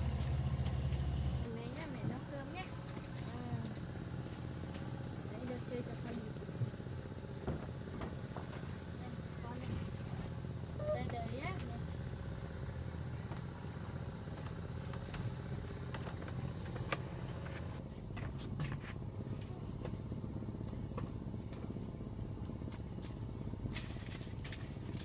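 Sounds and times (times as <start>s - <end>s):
low rumble: 0.0s - 2.9s
insects chirring: 0.0s - 25.0s.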